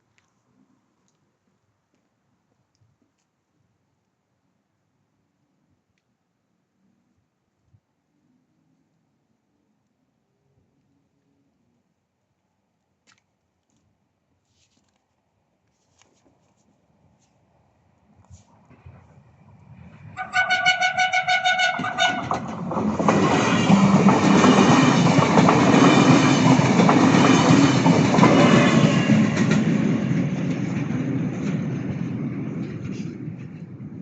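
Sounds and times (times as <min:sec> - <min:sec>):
train wheel and rail noise: 0:18.2 - 0:34.0
train horn: 0:20.2 - 0:22.5.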